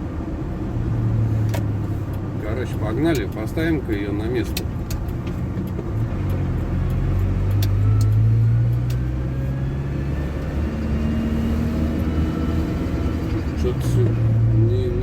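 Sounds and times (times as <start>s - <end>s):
van engine running: 0.0s - 15.0s
light ticks: 3.0s - 3.5s.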